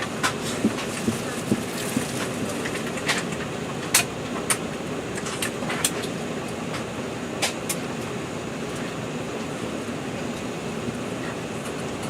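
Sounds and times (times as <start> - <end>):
airliner cabin ventilation hum: 0.0 - 12.0.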